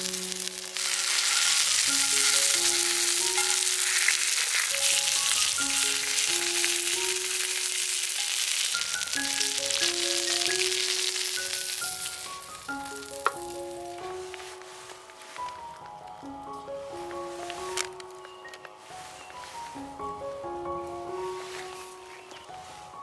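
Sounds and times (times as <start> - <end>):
food sizzling in a frying pan: 0.0 - 14.6
slow melodic background music: 0.0 - 23.0.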